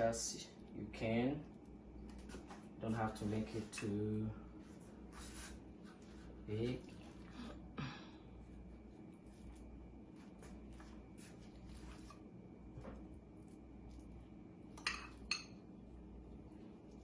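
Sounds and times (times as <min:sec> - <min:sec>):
spoon clinking against bowl: 0:14.8 - 0:15.6.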